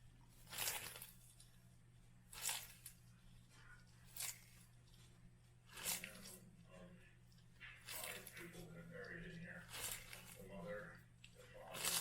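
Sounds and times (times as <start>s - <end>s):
faint low hum: 0.0s - 12.0s
tortoise crunching lettuce: 0.0s - 12.0s.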